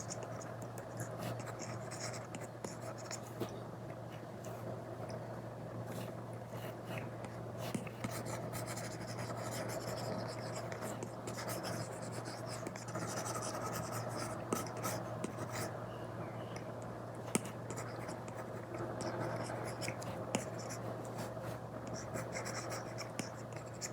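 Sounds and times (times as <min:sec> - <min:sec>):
steady low hum: 0:00.0 - 0:23.9
stylus scratching on screen: 0:07.7 - 0:15.7.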